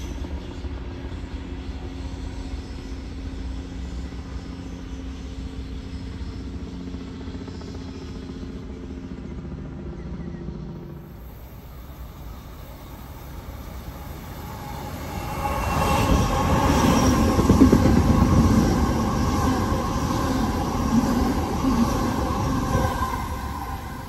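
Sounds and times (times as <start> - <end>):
electric train passing: 0.0 - 9.0, 10.6 - 24.0
electrical hum from train: 0.0 - 24.0
wheel and rail rumble: 10.6 - 24.0.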